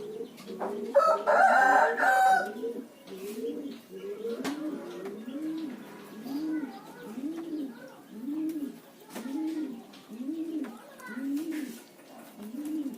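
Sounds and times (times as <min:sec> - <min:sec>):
dove cooing: 0:00.0 - 0:12.9
small birds chirping: 0:00.0 - 0:12.9.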